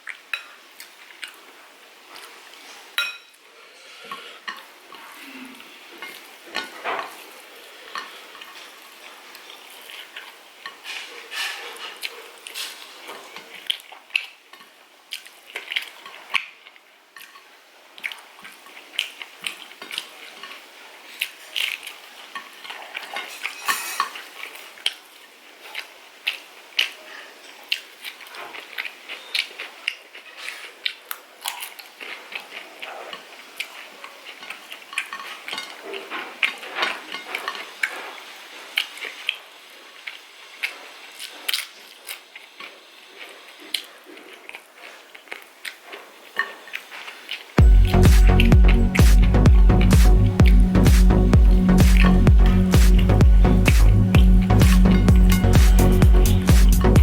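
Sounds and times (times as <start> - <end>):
cutlery clinking on a plate: 3.0 - 3.4, 10.8 - 12.0, 23.1 - 24.4.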